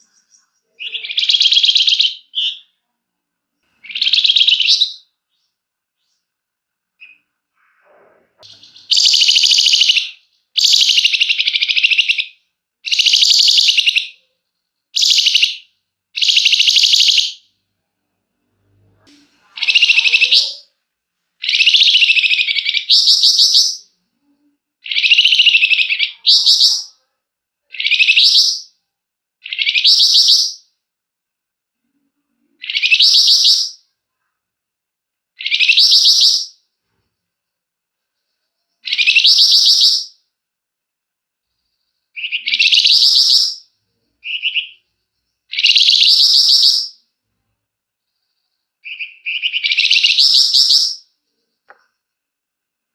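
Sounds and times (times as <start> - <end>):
songbird buzzy rattling song: 16.2 - 17.4.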